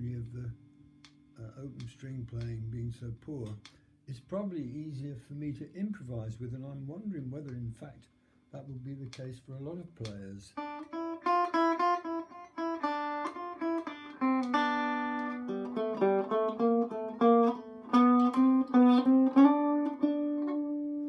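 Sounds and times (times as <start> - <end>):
electric banjo picking melody: 10.6 - 21.0.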